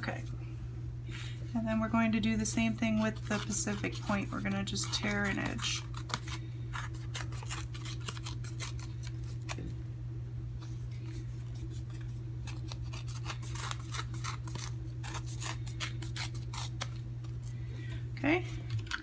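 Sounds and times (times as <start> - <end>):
steady low hum: 0.0 - 19.0
cardstock crinkling: 3.0 - 9.7.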